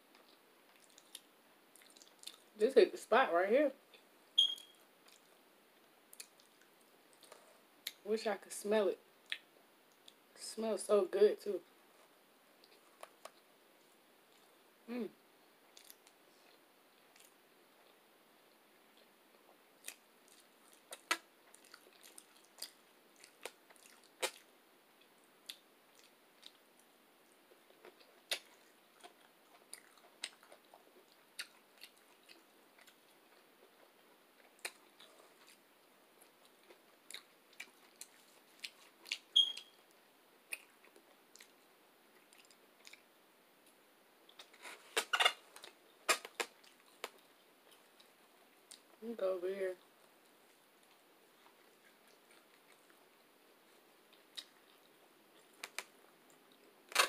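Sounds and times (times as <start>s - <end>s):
person chewing with wet clicks: 0.1s - 2.5s, 3.9s - 5.3s, 6.1s - 8.0s, 9.2s - 10.2s, 15.7s - 17.4s, 19.0s - 26.9s, 27.5s - 35.6s, 36.2s - 39.8s, 40.5s - 41.6s, 42.2s - 44.5s, 45.6s - 49.0s, 50.5s - 53.1s, 54.1s - 56.7s.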